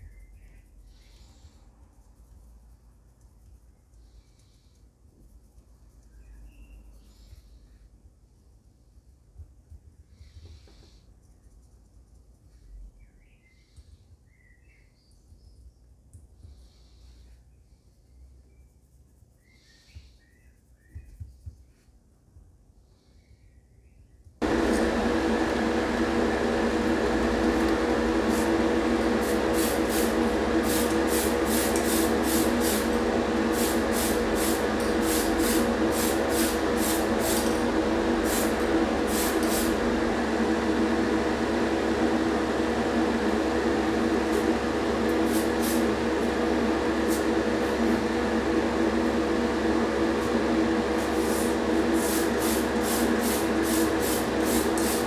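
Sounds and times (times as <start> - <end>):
small electric motor tool: 27.2 - 40.0
hissy strokes on metal: 27.4 - 40.0, 44.2 - 46.4, 51.0 - 55.0.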